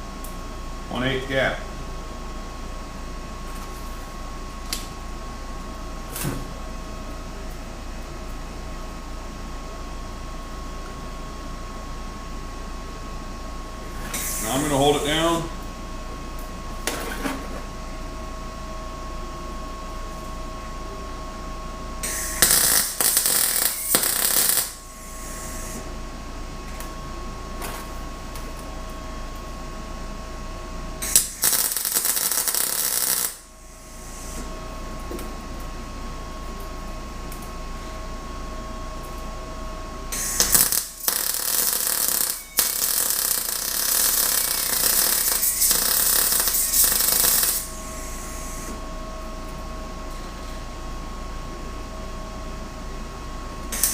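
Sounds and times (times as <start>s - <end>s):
steady hum with faint whine: 0.0s - 53.9s
arc welding crackling and hissing: 13.8s - 15.6s, 22.0s - 26.1s, 31.0s - 35.8s, 40.1s - 48.8s.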